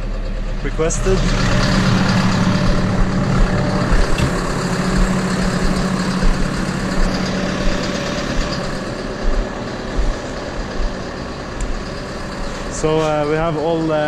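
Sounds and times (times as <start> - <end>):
tractor engine idling: 0.0 - 14.0
low thumps: 1.2 - 12.0.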